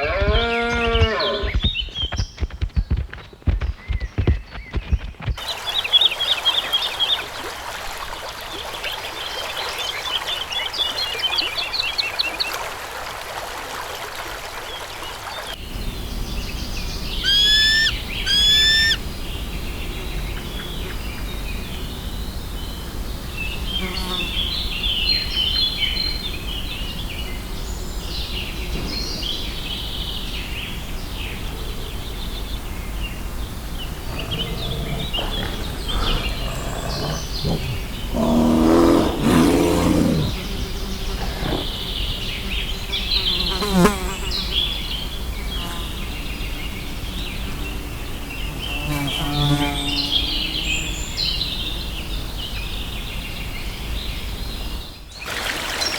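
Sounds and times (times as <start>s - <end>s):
birds chirping and trilling: 0.0s - 7.3s, 15.4s - 55.9s
loud rising whistled bird calls: 16.4s - 19.0s.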